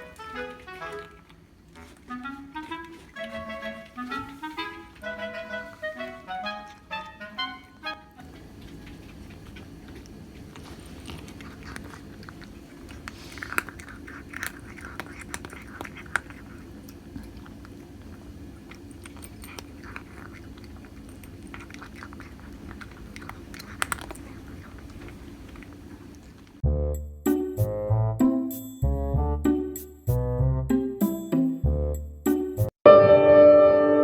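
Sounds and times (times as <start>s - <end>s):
cat biting and nibbling: 0.0s - 26.6s
low room hum: 0.0s - 26.8s.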